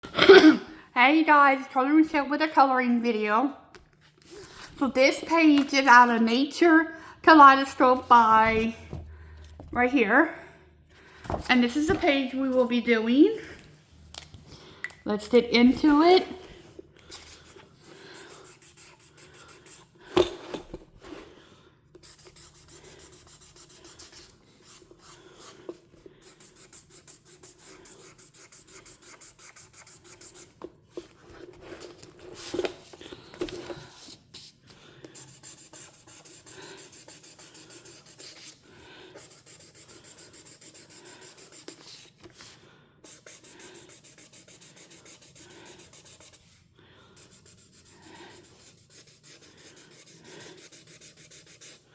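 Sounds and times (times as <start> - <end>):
coloring tool scratching paper: 17.1 - 19.9, 22.0 - 30.6, 34.0 - 46.6, 47.2 - 51.9.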